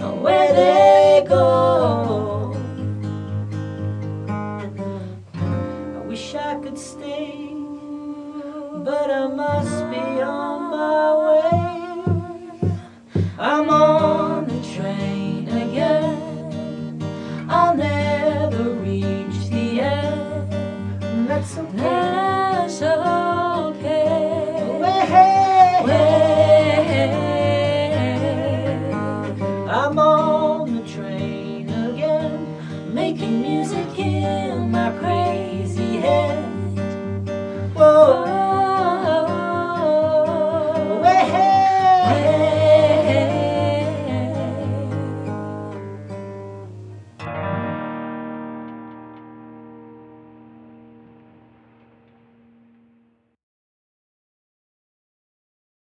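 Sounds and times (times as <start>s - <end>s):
person singing with vibrato: 0.0s - 2.9s, 6.0s - 46.2s
acoustic guitar: 0.0s - 53.4s.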